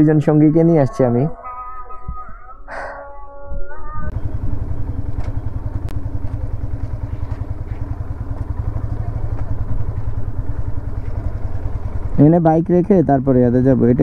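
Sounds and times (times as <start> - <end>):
motorcycle engine running: 4.1 - 14.0.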